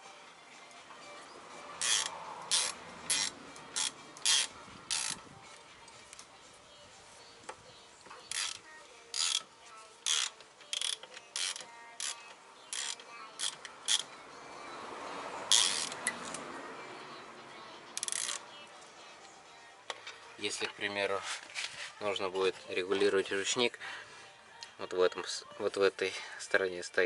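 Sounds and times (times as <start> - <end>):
ratchet wrench clicking: 1.8 - 5.2, 8.3 - 14.1, 15.5 - 16.4, 18.0 - 18.4.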